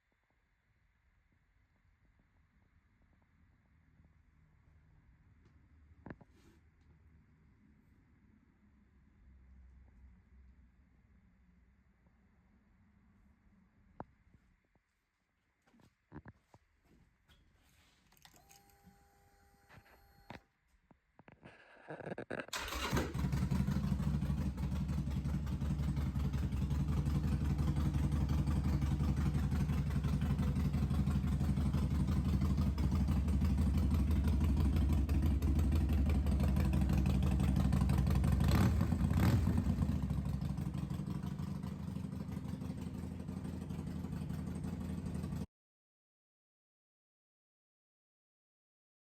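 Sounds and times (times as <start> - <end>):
motorcycle engine idling: 22.5 - 45.4.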